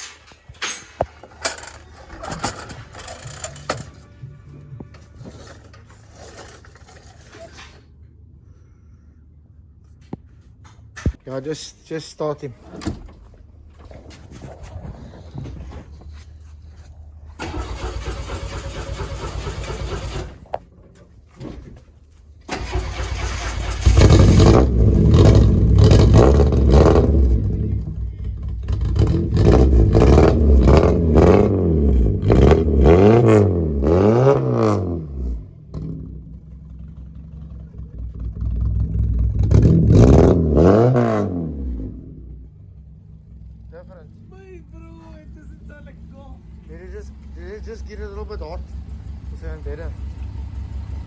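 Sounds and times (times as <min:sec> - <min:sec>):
starter cranking: 0:00.0 - 0:04.1, 0:17.4 - 0:20.9, 0:22.5 - 0:27.3
car engine revving: 0:13.5 - 0:20.7, 0:22.5 - 0:51.0.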